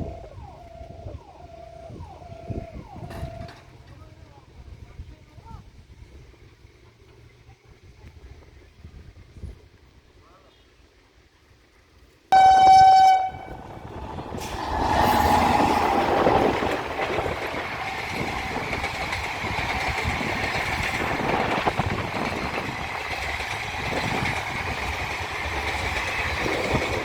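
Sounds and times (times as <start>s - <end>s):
train wheels on rails: 0.0s - 4.4s, 12.4s - 27.0s
train horn blast: 12.4s - 13.8s, 14.4s - 17.0s.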